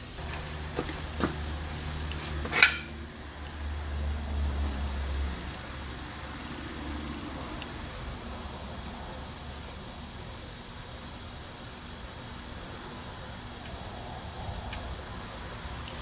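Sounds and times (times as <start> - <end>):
low fan hum: 0.0 - 6.6.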